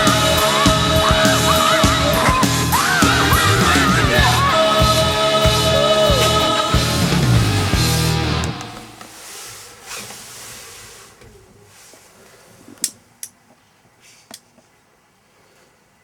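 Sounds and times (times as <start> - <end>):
rock music: 0.0 - 9.0.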